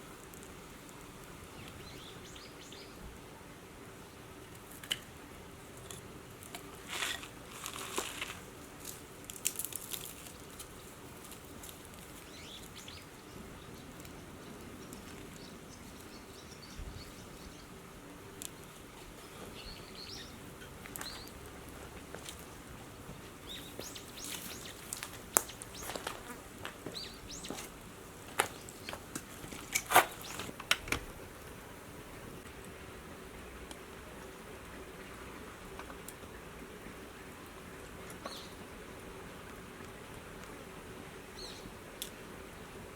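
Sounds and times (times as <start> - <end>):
wood fire crackling: 0.0 - 42.9
small birds chirping: 1.5 - 3.1, 11.9 - 17.8, 18.4 - 30.8, 38.0 - 38.8, 41.3 - 41.8.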